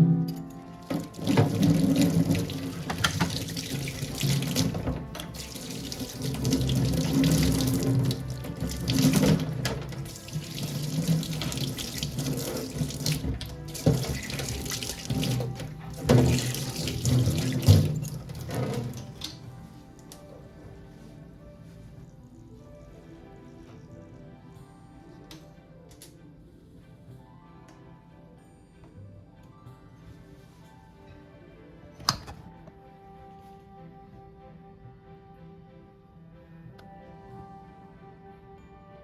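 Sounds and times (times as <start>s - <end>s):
tap water running into sink: 0.3s - 19.4s.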